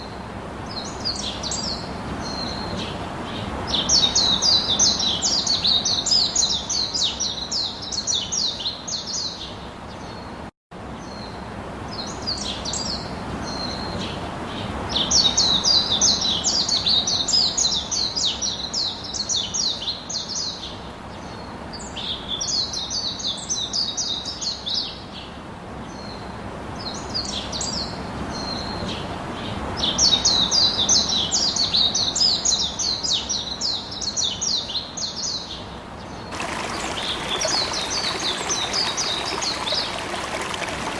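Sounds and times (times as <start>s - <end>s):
birds singing: 26.8s - 40.9s.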